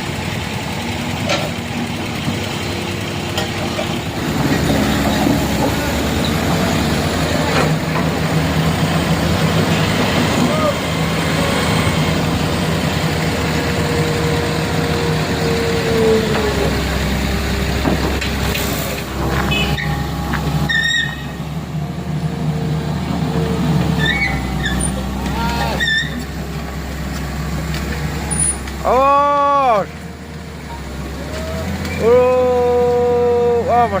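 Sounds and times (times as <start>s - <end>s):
truck engine running under load: 0.0s - 34.0s
short squeaks: 19.3s - 21.4s, 24.0s - 25.0s, 25.7s - 26.3s.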